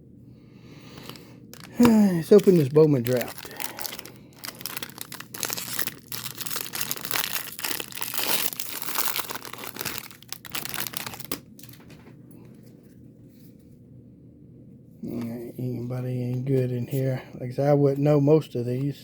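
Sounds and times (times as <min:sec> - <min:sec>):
foil wrapper tearing and crinkling: 0:01.0 - 0:11.9.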